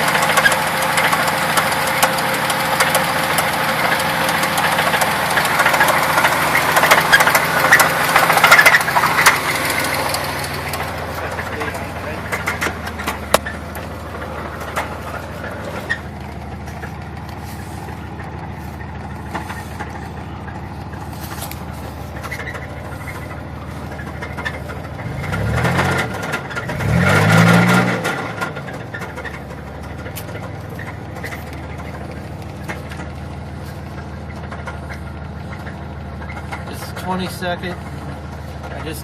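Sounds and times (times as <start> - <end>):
car engine idling and revving: 0.0 - 39.0
engine knock: 0.0 - 39.0.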